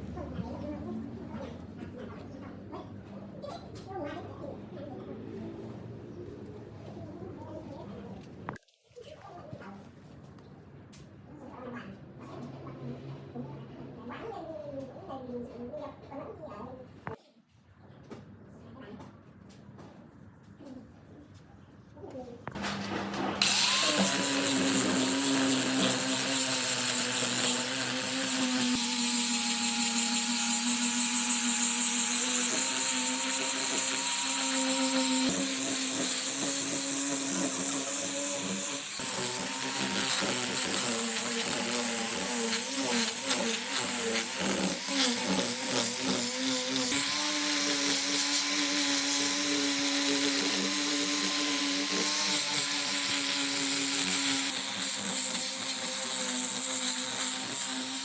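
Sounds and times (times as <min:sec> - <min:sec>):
power tool motor running: 0:22.6 - 0:58.0.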